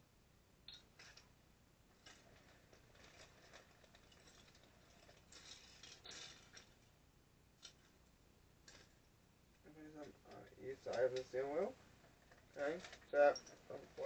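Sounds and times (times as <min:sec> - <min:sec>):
plastic pieces clicking: 0:02.0 - 0:06.9.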